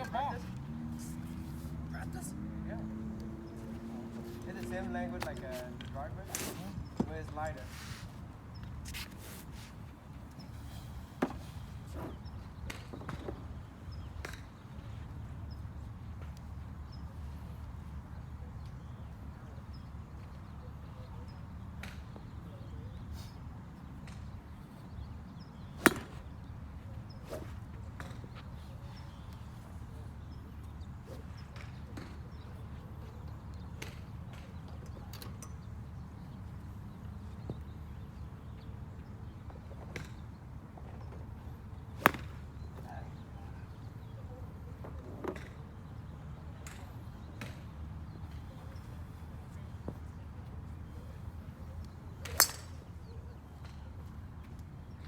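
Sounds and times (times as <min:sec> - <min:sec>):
golf clubs striking balls: 0:25.6 - 0:26.4, 0:27.3 - 0:28.3, 0:42.0 - 0:42.5, 0:52.2 - 0:53.0
golf club striking ball: 0:25.8 - 0:26.2, 0:42.0 - 0:42.3, 0:52.3 - 0:52.8.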